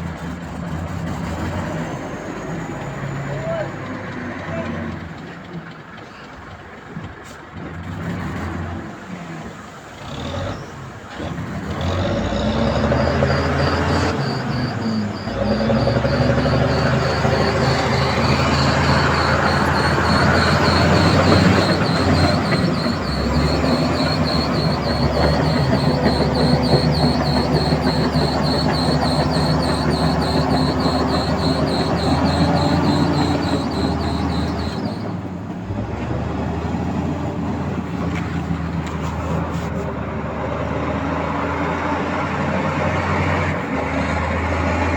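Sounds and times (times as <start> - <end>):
bulldozer diesel engine running: 11.3 - 41.7
pulsing squeal from tracks: 11.8 - 35.8.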